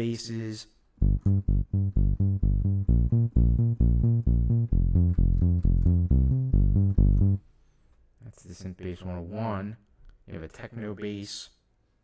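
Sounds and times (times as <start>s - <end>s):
fast synth bass notes: 1.0s - 7.4s.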